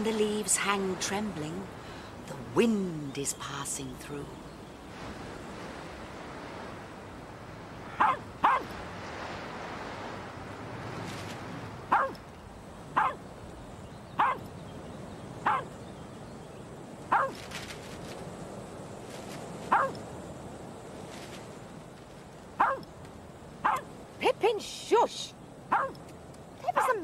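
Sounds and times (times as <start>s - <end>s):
dog barking: 7.9s - 8.8s, 11.9s - 12.2s, 13.0s - 13.2s, 14.2s - 14.5s, 15.4s - 15.7s, 17.1s - 17.4s, 19.7s - 20.0s, 22.6s - 22.9s, 23.6s - 23.9s, 25.7s - 26.1s.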